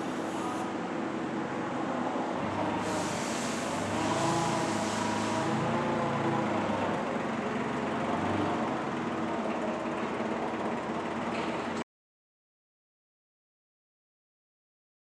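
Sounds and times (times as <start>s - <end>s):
hiss: 0.0s - 0.7s, 2.7s - 5.8s
vehicle engine running: 2.4s - 11.8s.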